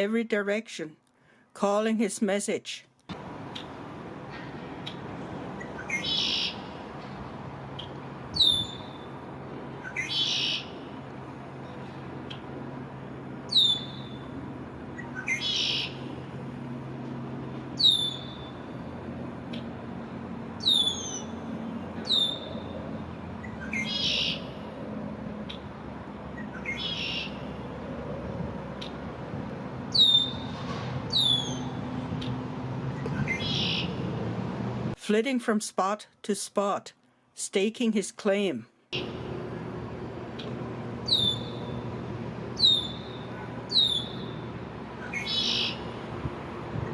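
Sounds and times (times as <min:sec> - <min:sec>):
bird short rasping calls: 0:05.8 - 0:06.8, 0:09.8 - 0:10.9, 0:15.2 - 0:16.0, 0:23.6 - 0:24.5, 0:45.0 - 0:45.9
low hum: 0:39.0 - 0:46.9.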